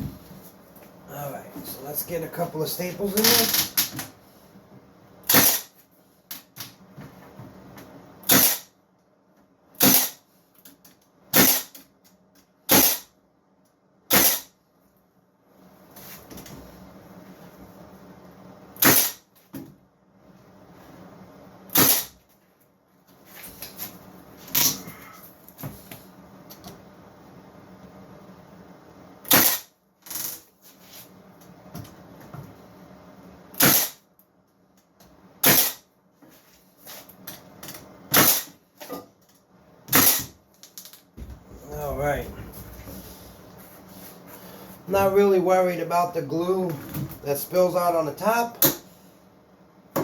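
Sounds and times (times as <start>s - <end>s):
brad nailer firing into wood: 5.2s - 5.8s, 8.2s - 8.7s, 9.8s - 10.2s, 11.3s - 11.9s, 12.7s - 13.1s, 14.1s - 14.5s, 18.8s - 19.3s, 21.7s - 22.2s, 29.3s - 29.7s, 33.6s - 34.0s, 35.4s - 35.8s, 38.1s - 38.6s, 39.9s - 40.4s.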